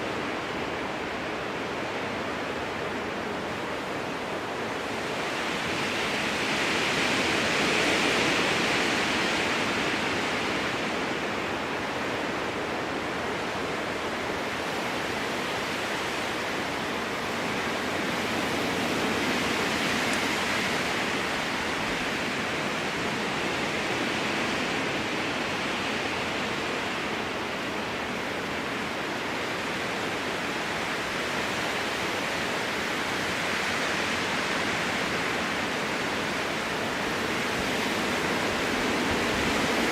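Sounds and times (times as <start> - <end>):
wind gusting through trees: 0.0 - 39.9.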